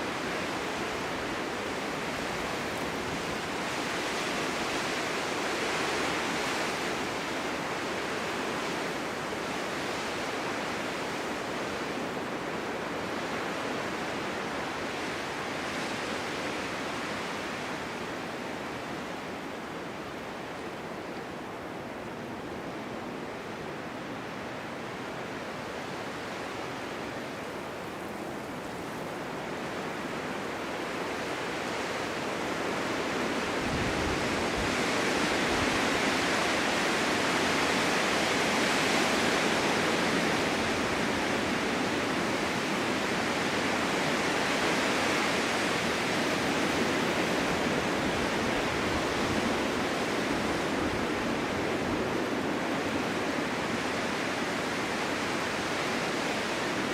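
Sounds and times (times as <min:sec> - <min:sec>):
wind blowing: 0:00.0 - 0:10.2, 0:25.1 - 0:56.9.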